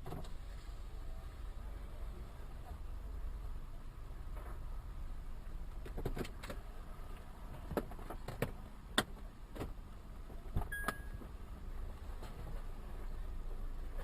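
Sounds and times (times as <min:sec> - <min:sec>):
short beep: 0:10.7 - 0:11.3.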